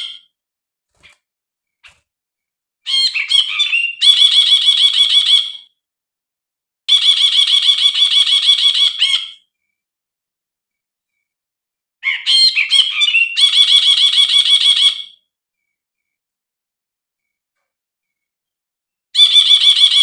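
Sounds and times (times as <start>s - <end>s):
bird chattering song: 2.8s - 5.7s, 6.9s - 9.8s, 12.0s - 16.2s, 19.2s - 20.0s.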